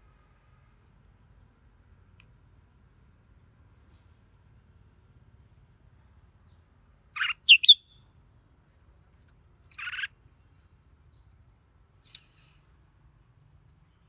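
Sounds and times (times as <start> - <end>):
bulbul calling: 7.2 - 7.8, 9.8 - 10.1.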